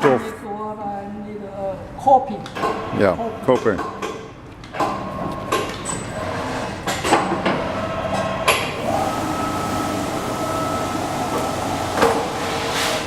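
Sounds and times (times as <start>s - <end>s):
machine motor whine: 7.7s - 13.0s.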